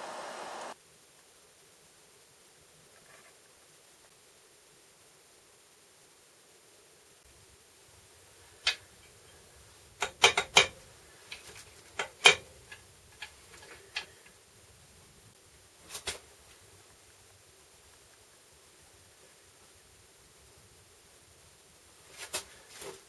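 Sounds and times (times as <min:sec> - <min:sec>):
metal parts and tools clicking: 0:10.0 - 0:14.1.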